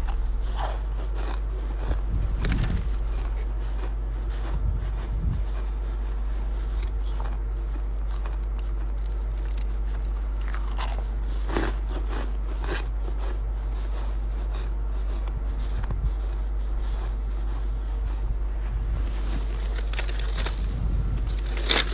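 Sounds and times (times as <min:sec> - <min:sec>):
frost crunching in mouth: 0:00.0 - 0:13.4, 0:19.0 - 0:21.9
steady low hum: 0:00.0 - 0:21.9.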